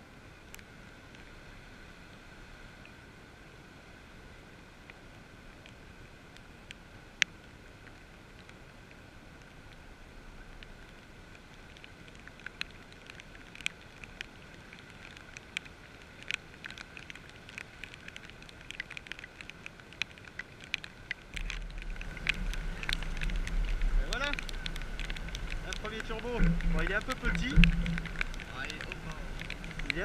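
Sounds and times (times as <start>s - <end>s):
raindrops ticking on housing: 4.8s - 30.0s
wind buffeting microphone: 21.4s - 30.0s.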